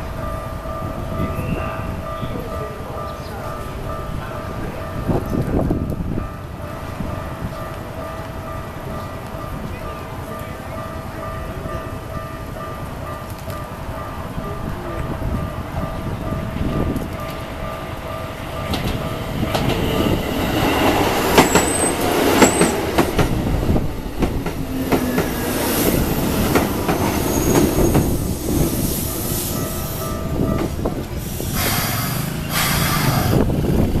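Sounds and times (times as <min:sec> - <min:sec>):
electric train passing: 0:00.0 - 0:34.0
wheels clicking over rail joints: 0:16.7 - 0:28.6
high wheel squeals: 0:21.3 - 0:22.8, 0:25.6 - 0:30.5, 0:31.2 - 0:33.5.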